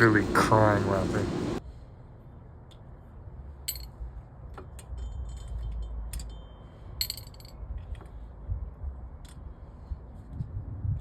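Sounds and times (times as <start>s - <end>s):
metallic clinks of tools: 4.6s - 8.1s.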